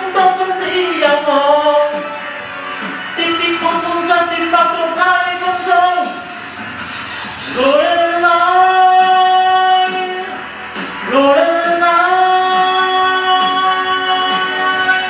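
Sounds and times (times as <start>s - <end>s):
backing music: 0.0s - 15.0s
person singing long high notes: 7.5s - 10.4s, 11.0s - 15.0s.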